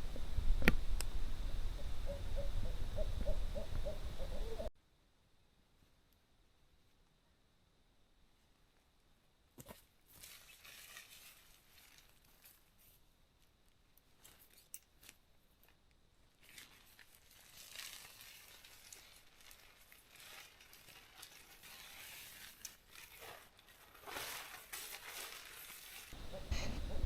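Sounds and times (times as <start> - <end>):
nylon gear rustling: 10.1 - 13.0, 16.4 - 27.0.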